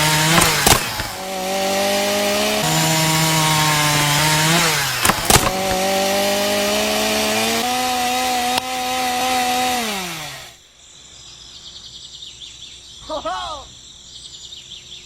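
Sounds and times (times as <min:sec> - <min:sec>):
sharp knocks: 0:00.0 - 0:09.0
small electric saw motor whining: 0:00.0 - 0:10.6.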